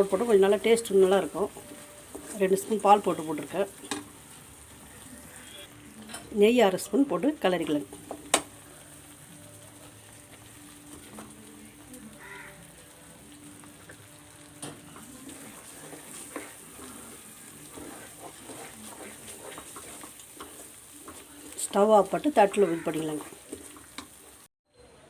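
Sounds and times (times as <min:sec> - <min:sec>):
mixture sizzling in a pan: 0:00.0 - 0:24.5
spoon scraping a pan: 0:13.8 - 0:24.4.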